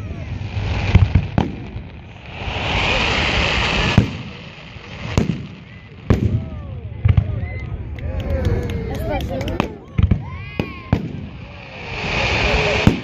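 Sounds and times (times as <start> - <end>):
firework hissing: 0.0 - 6.9, 10.2 - 13.0
fireworks bangs: 0.0 - 7.9, 8.9 - 13.0.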